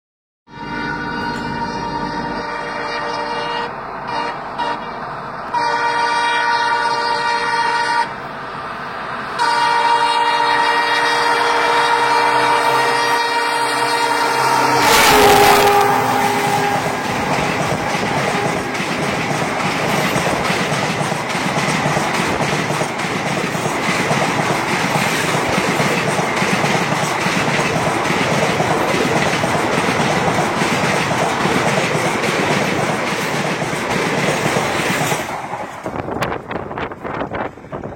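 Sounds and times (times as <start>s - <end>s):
train rushing rumble: 0.6s - 37.9s
train wheel clicks: 16.8s - 37.9s.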